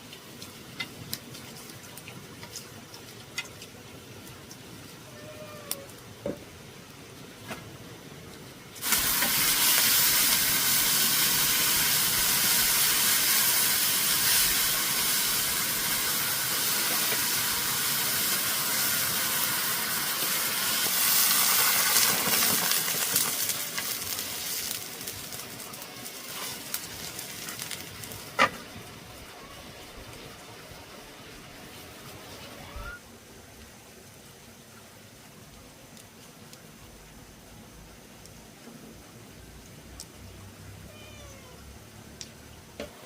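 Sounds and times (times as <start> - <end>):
food sizzling in hot oil: 8.8 - 30.2.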